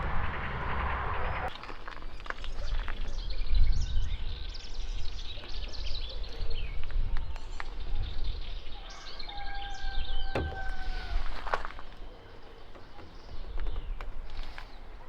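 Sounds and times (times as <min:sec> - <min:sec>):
low outdoor rumble: 0:00.0 - 0:01.5
small birds chirping: 0:02.1 - 0:15.0.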